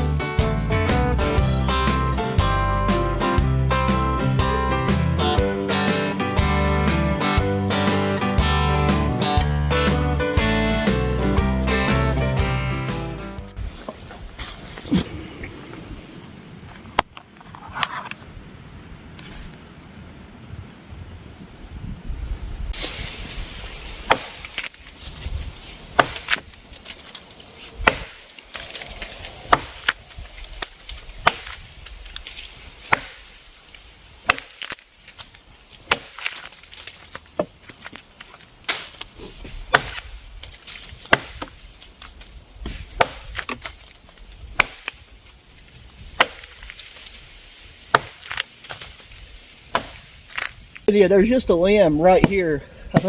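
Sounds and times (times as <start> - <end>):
axe chopping wood: 0.9 - 14.6, 24.0 - 24.9, 25.8 - 27.2, 27.8 - 32.0, 32.8 - 33.5, 34.2 - 45.2, 46.0 - 47.2, 47.8 - 50.6, 52.1 - 53.0.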